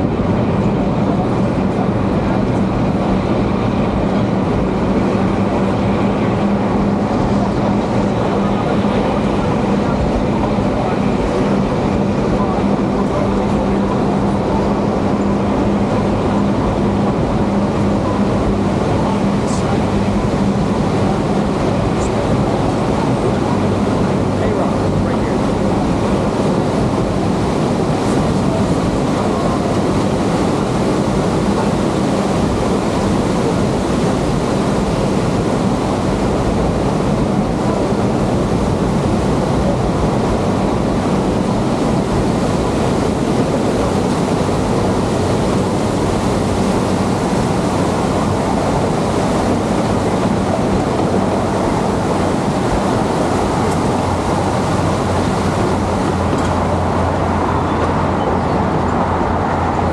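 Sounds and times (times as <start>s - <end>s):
train cars rolling on rails: 46.7s - 59.9s.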